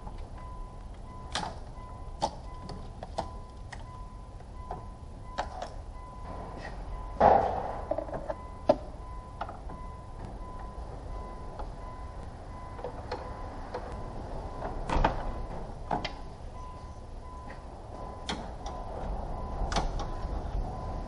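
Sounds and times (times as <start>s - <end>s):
faint steady high tone: 0.0s - 21.0s
metal clank: 6.2s - 8.4s.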